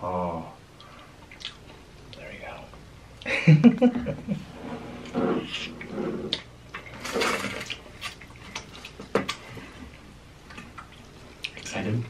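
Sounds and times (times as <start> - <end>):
wet chewing and mouth sounds: 0.8 - 2.3, 7.6 - 11.8.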